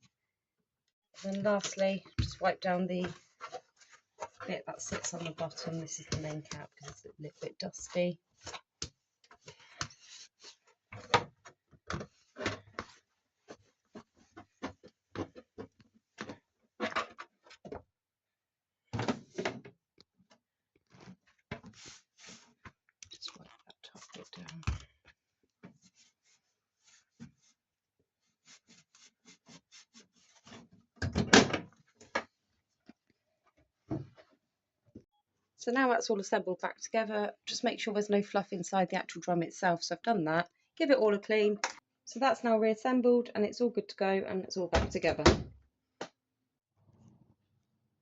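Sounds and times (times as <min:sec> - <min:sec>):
cloth rubbing on plastic: 0:21.6 - 0:22.6.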